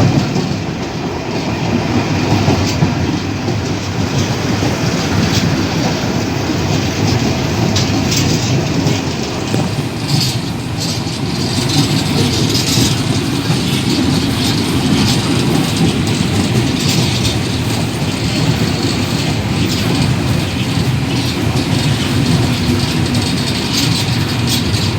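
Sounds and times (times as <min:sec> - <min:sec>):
train rumbling on track: 0:00.0 - 0:24.9
wheels clanking on rails: 0:00.0 - 0:24.9.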